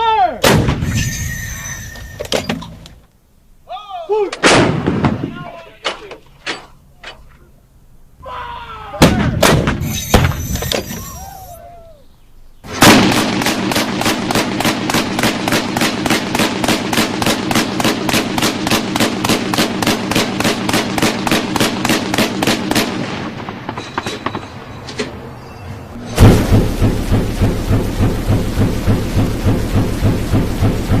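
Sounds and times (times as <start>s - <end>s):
rapid gunfire: 12.7s - 23.8s, 26.2s - 31.0s
loud sudden burst: 26.0s - 31.0s.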